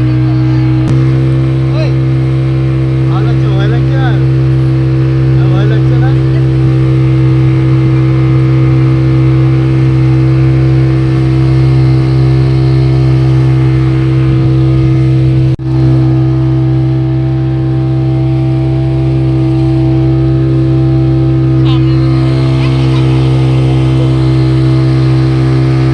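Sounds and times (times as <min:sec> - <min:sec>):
speedboat engine running: 0:00.0 - 0:25.9.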